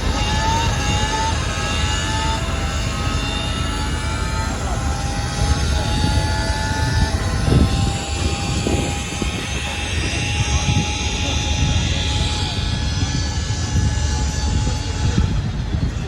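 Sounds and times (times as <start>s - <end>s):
car engines rumbling: 0.0s - 16.0s
thin whining tones: 0.0s - 16.0s.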